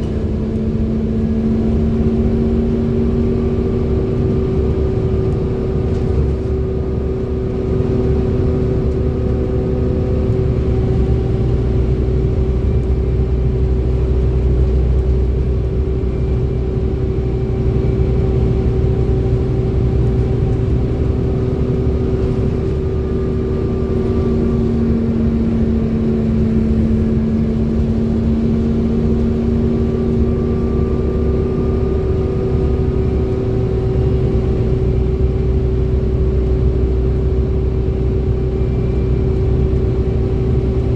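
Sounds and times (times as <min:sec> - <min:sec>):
bus engine running: 0:00.0 - 0:40.9
high whine of bus driveline: 0:00.0 - 0:40.9.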